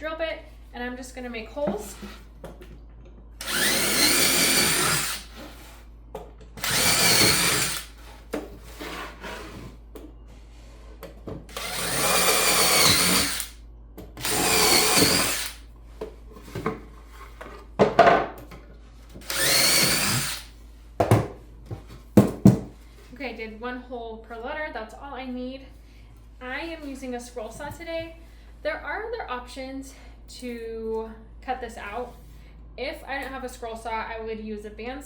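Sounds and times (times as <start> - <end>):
power drill drilling into wood: 3.4 - 5.3, 6.6 - 7.9, 11.5 - 13.5, 14.2 - 15.6, 19.2 - 20.5.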